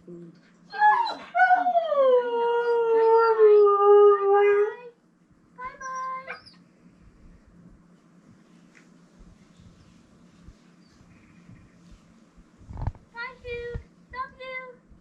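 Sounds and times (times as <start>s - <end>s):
husky howling: 0.7s - 4.9s.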